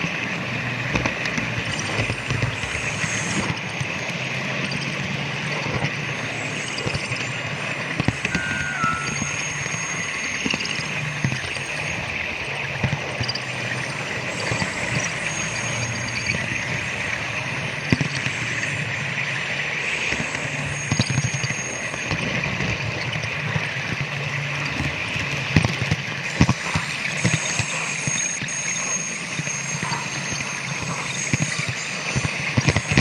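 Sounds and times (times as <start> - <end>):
model train running on track: 0.2 - 9.3, 11.3 - 33.0.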